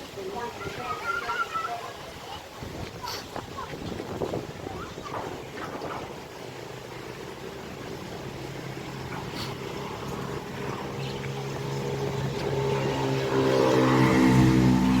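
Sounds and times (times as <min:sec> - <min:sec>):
motor engine running: 0:05.1 - 0:15.0.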